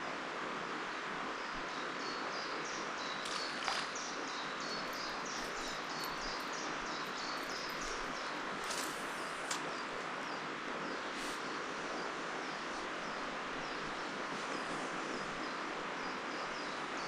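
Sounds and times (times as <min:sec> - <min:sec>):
rushing background noise: 0:02.6 - 0:17.0
small bird chirping: 0:03.0 - 0:11.0.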